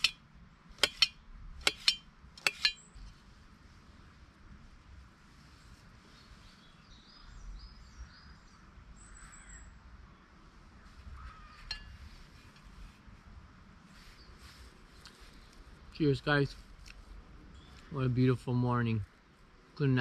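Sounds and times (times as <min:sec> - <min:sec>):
bird chirps: 0:17.5 - 0:18.0.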